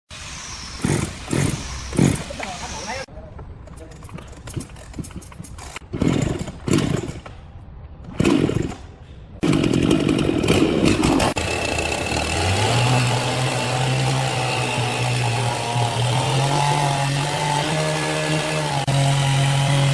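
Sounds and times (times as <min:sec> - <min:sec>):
petrol engine cranking: 0:03.7 - 0:07.3
small petrol engine running: 0:09.4 - 0:17.4.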